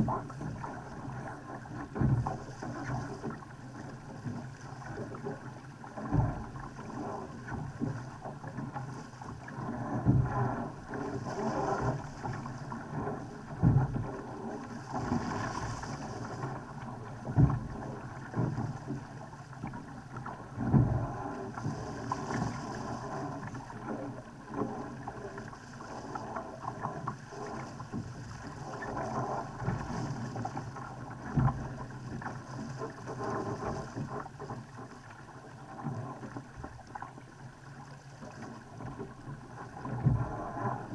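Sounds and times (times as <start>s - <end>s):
boat hull slapping waves: 0.0s - 40.9s
water rushing along hull: 0.0s - 40.9s.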